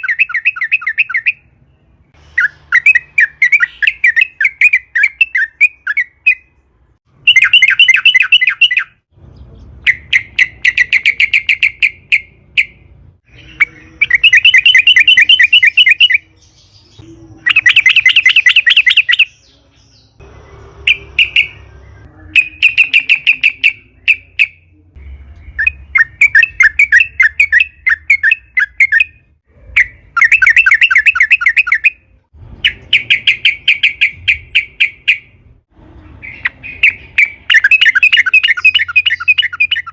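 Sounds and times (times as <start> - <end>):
bird song with bubbling notes: 0.0 - 6.6, 12.6 - 32.0, 36.2 - 39.9.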